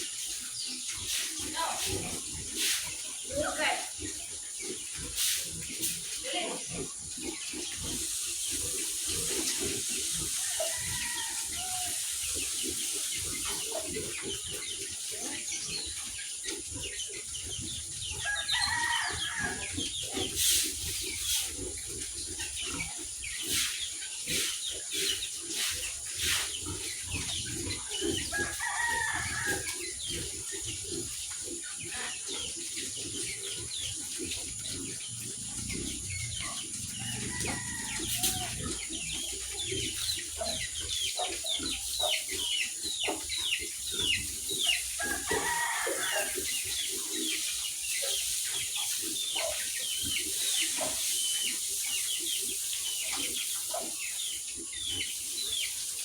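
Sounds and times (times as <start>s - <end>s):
hens clucking: 0.0s - 56.0s
roosters crowing: 10.1s - 12.2s, 18.0s - 20.0s, 27.9s - 30.1s, 35.0s - 40.7s, 44.2s - 46.9s.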